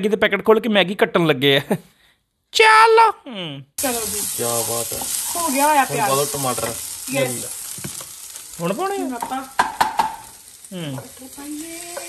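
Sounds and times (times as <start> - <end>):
food sizzling in oil: 3.8 - 12.0.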